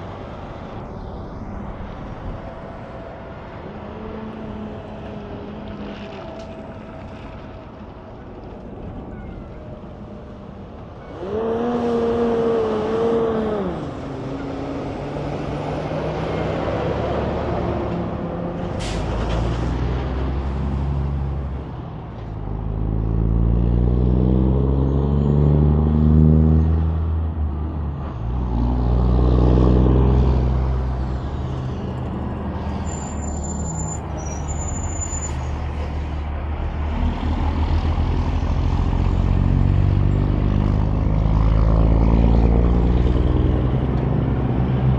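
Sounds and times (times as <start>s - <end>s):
trucks passing on highway: 0.0s - 44.9s.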